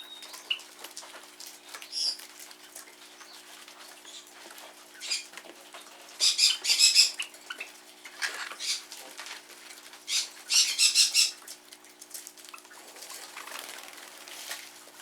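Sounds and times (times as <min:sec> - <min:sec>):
birds chattering harshly: 0:01.5 - 0:02.3, 0:02.9 - 0:09.1, 0:10.0 - 0:11.5.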